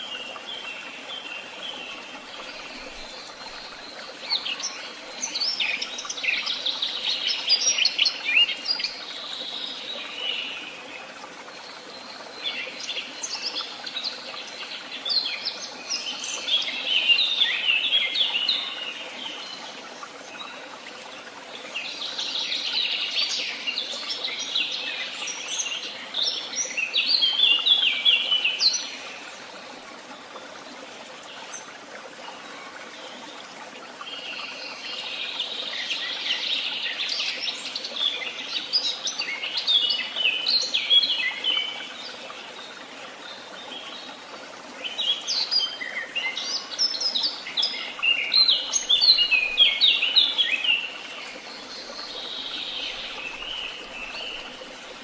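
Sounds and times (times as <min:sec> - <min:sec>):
songbirds twittering: 0:31.2 - 0:55.0.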